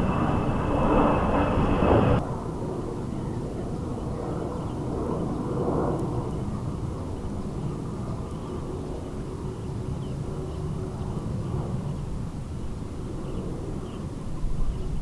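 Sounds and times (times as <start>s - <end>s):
jet engines rumbling: 0.0s - 2.8s
wind buffeting microphone: 0.0s - 15.0s.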